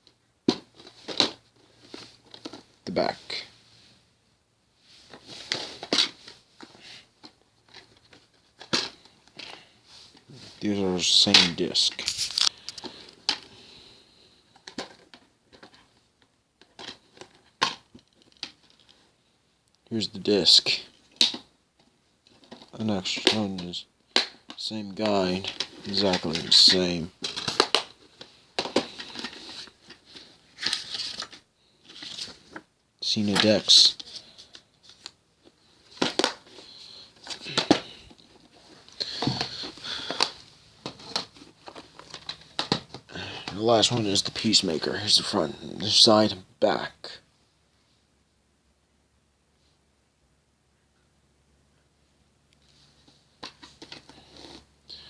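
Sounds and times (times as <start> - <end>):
plastic cases clicking and rustling: 0.4 - 2.8, 5.1 - 10.3, 11.3 - 13.7, 14.5 - 19.1, 20.8 - 44.6, 53.0 - 54.7.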